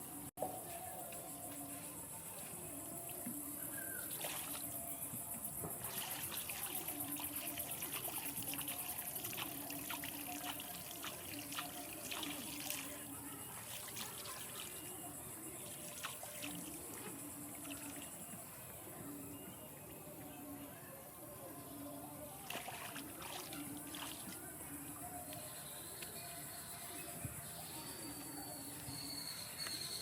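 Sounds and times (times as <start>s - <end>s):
small water splashes: 3.7s - 5.0s, 5.7s - 18.4s, 22.2s - 25.1s
water trickling: 5.8s - 18.4s.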